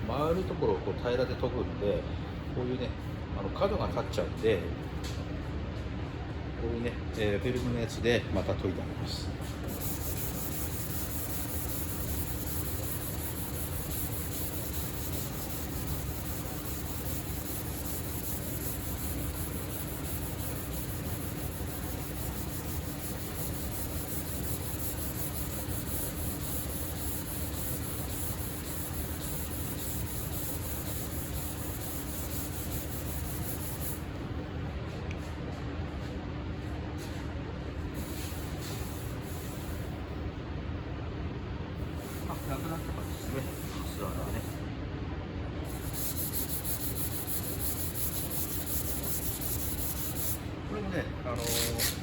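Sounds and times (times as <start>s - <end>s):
sandpaper rubbing on car panel: 9.6s - 34.0s, 45.7s - 50.4s, 51.4s - 52.0s.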